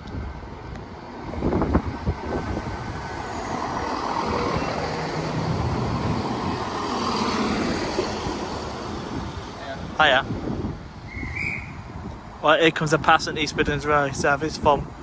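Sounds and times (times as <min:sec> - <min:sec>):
diesel train engine and wheels: 0:00.0 - 0:15.0.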